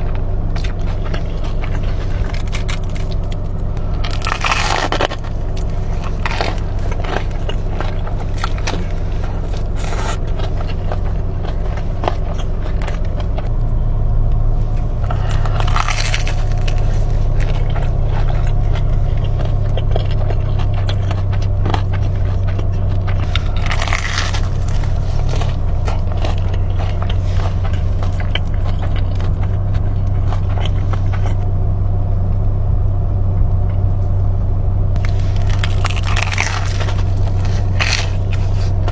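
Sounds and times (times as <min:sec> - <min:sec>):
crunching and chewing food: 0:00.0 - 0:34.3, 0:35.0 - 0:38.9
low hum: 0:00.0 - 0:38.9.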